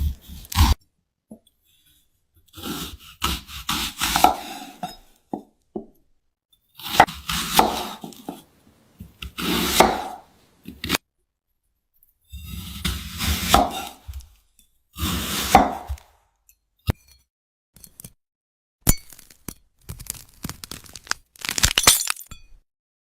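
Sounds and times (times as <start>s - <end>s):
knife crunching through fruit: 0.0s - 0.8s, 18.9s - 22.3s.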